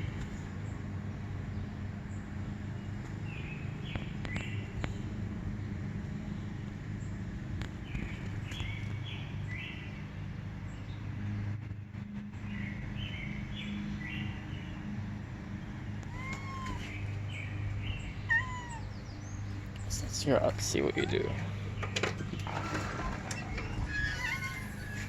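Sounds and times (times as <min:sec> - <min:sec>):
steady low hum: 0:00.0 - 0:25.0
cat meowing: 0:16.0 - 0:17.0, 0:18.3 - 0:19.0, 0:20.6 - 0:21.5, 0:23.7 - 0:25.0
bird chirping: 0:16.0 - 0:25.0.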